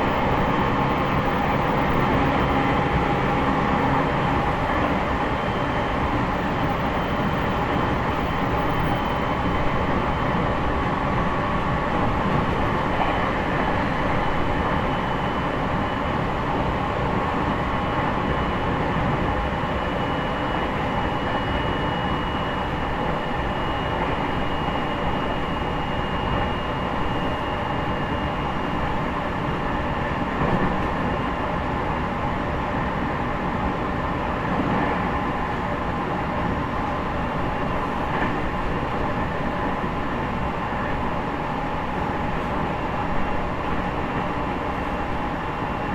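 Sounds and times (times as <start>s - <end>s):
train wheels rumbling on rail: 26.0s - 45.9s.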